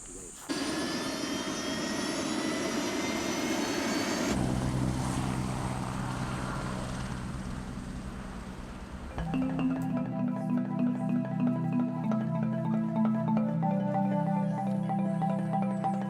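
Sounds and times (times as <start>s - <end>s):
helicopter engine whine: 0.4s - 9.2s
helicopter rotor drone: 0.4s - 9.3s
marimba-like music: 9.1s - 16.0s.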